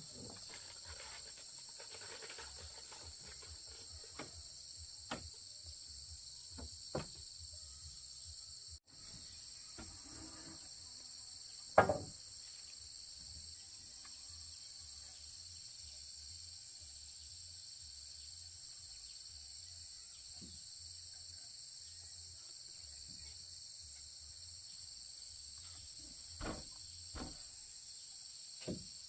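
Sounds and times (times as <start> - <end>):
forest insect chorus: 0.0 - 29.0
short knocks: 11.8 - 12.1, 26.4 - 27.5.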